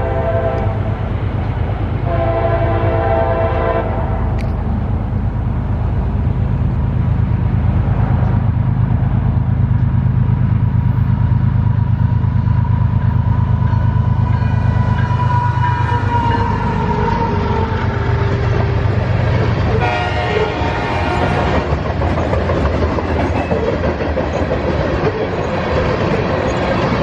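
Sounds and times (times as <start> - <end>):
locomotive horn chord blast: 0.0 - 0.9, 2.0 - 4.4, 19.7 - 21.7
train passing rumble: 0.0 - 27.0.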